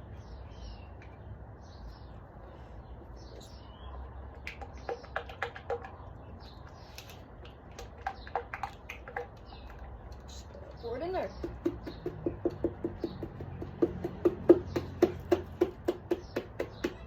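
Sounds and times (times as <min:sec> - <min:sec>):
small objects clicking and tapping: 0:06.8 - 0:10.3.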